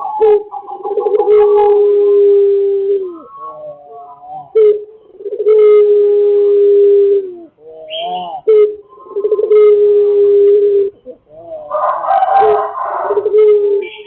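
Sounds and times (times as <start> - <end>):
rooster crowing: 0.0 - 4.2, 9.3 - 14.0
high chirp: 7.1 - 11.7, 13.2 - 14.0.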